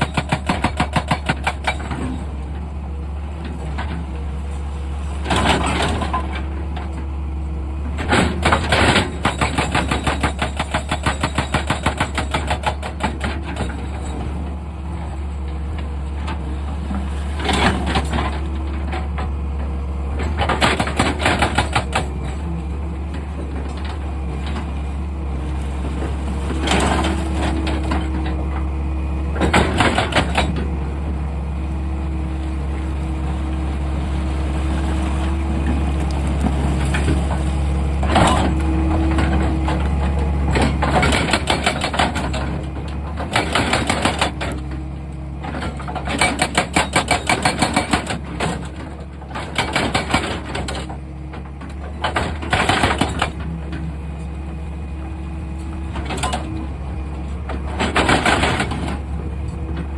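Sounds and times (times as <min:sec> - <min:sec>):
excavator diesel engine running: 0:00.0 - 0:59.9
hydraulic hum: 0:13.2 - 0:46.7.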